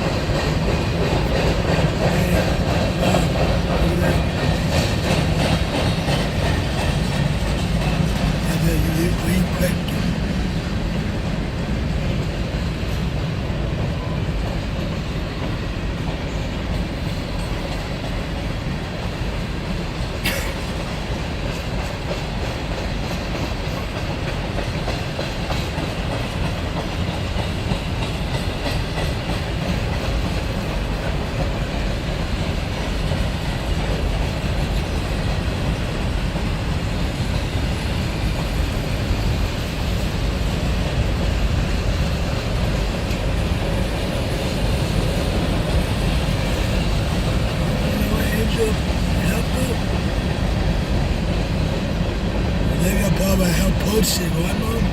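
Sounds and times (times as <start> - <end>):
wheels clacking over rail joints: 0.0 - 8.6
freight train rumbling past: 0.0 - 54.9.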